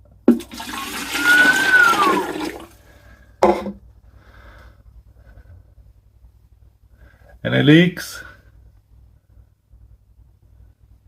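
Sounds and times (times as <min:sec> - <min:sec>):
water pouring into plastic bottle: 0:00.3 - 0:02.7
whistling tone: 0:00.8 - 0:02.5.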